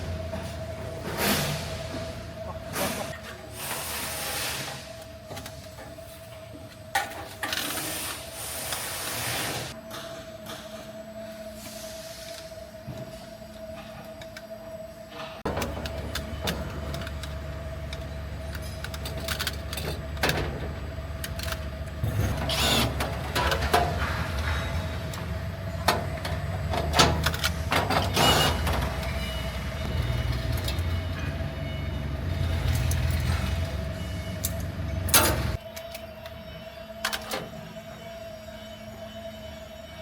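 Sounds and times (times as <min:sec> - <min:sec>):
factory machinery humming: 0:00.0 - 0:40.0
metal clanks and knocks: 0:18.5 - 0:29.4
constant mid-pitched tone: 0:22.6 - 0:40.0.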